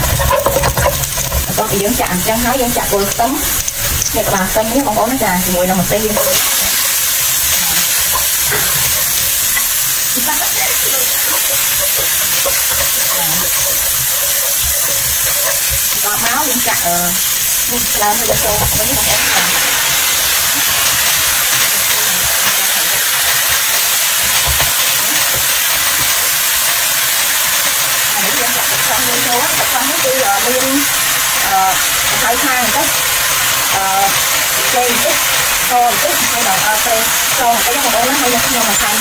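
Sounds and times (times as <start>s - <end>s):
spatula stirring in wok: 0.0s - 31.0s
food sizzling in hot oil: 0.0s - 39.0s.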